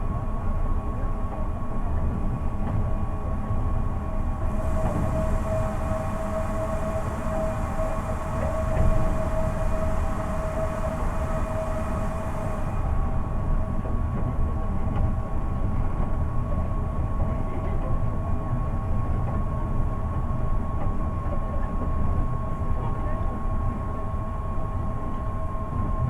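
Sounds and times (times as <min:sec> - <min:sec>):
high traction motor whine: 0:04.3 - 0:13.9.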